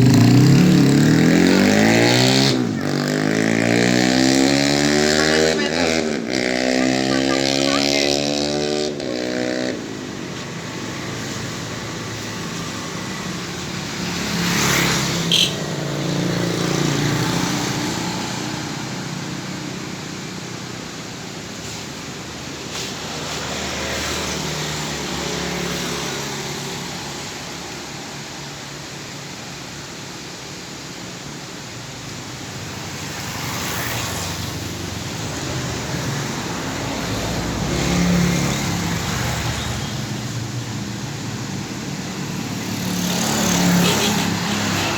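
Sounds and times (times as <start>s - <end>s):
motorcycle engine running: 0.0s - 15.6s
traffic noise: 0.0s - 44.9s.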